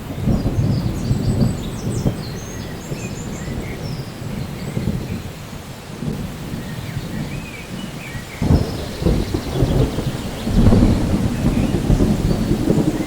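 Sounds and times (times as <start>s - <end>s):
rolling thunder: 0.0s - 13.0s
steady rain: 0.0s - 13.0s.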